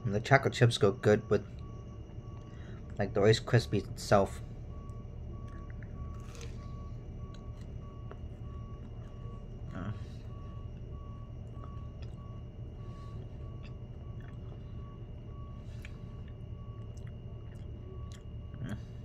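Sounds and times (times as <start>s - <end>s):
faint beeps: 0.0s - 19.0s
steady low hum: 0.0s - 19.0s
quiet chewing: 4.9s - 19.0s.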